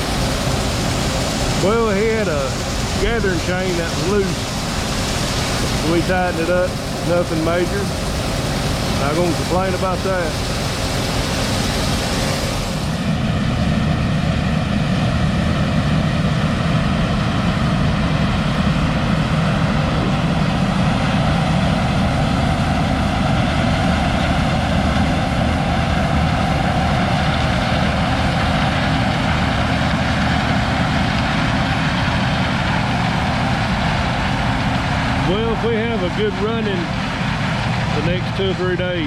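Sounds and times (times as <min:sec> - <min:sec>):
hiss: 0:00.0 - 0:13.1
heavy diesel engine running: 0:00.0 - 0:39.0.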